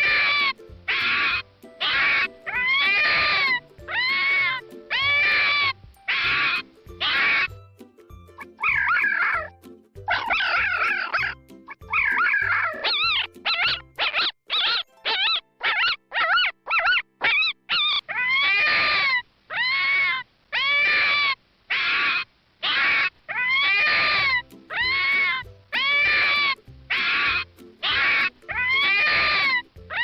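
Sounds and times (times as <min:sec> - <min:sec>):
animal calling: 0:00.0 - 0:07.6, 0:08.4 - 0:09.5, 0:10.1 - 0:30.0.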